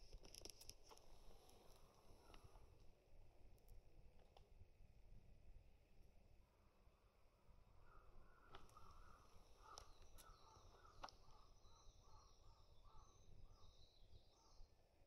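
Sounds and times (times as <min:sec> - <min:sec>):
faint high bird chirping: 0:08.3 - 0:14.8.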